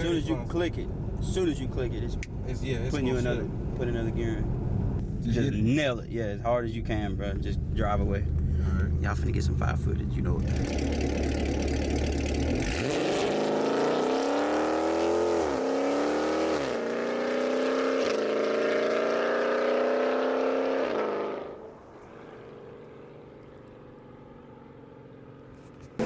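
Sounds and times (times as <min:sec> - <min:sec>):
faint low engine rumble: 0:00.0 - 0:12.6, 0:21.6 - 0:26.0
car engine accelerating through gears: 0:07.4 - 0:23.8.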